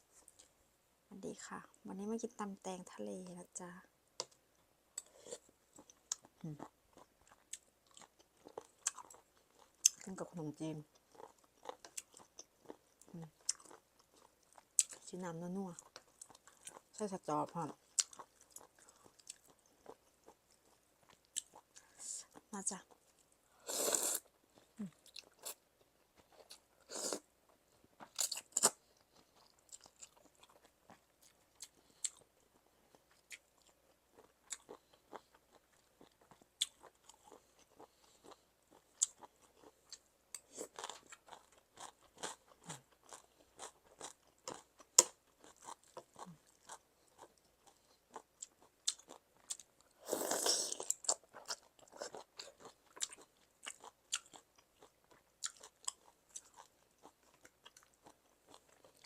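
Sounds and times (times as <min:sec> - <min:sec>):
crunchy chewing: 0:05.0 - 0:10.0, 0:17.8 - 0:59.0.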